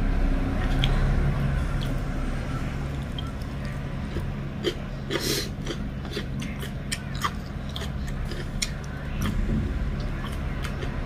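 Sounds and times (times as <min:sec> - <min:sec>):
wet chewing and lip smacking: 0:02.9 - 0:09.4
low hum: 0:07.6 - 0:11.0.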